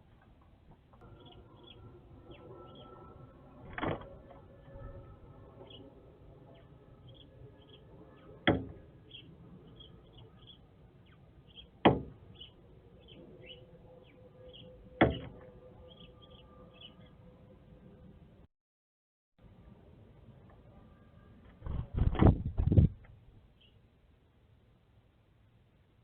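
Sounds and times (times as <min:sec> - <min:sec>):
faint high chirps: 0:01.0 - 0:03.6.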